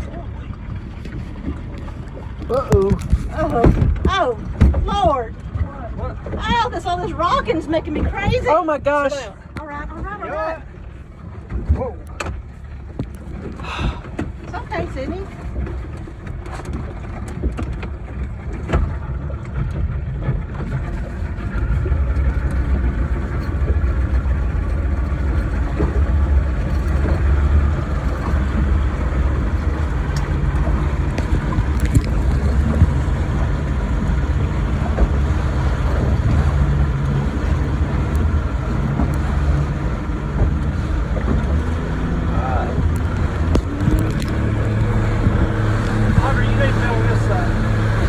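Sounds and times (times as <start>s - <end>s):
motorboat engine running: 0.0s - 48.0s.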